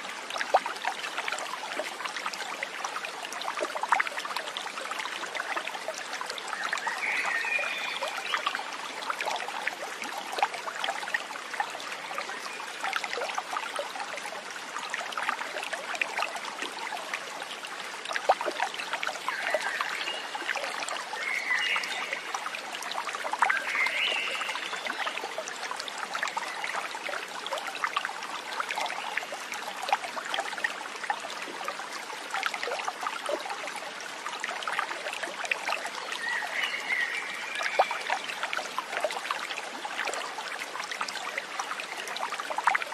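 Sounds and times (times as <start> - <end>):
water trickling in a stream: 0.0 - 42.9.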